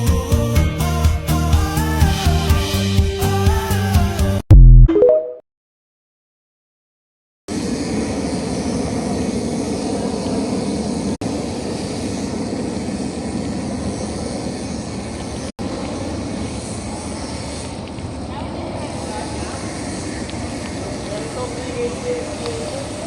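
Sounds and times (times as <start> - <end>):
road noise of bicycle in traffic: 7.5 - 23.0
rushing wind: 7.5 - 23.0.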